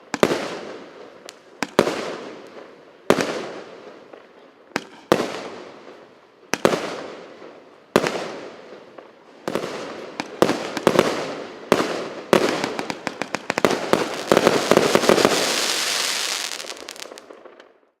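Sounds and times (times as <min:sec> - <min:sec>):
firework bangs: 0:09.5 - 0:17.6
firework crackling: 0:09.8 - 0:17.5.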